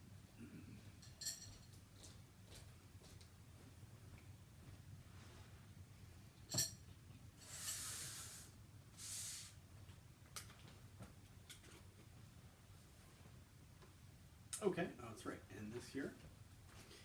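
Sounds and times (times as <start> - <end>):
short hissing swishes: 7.4 - 9.6.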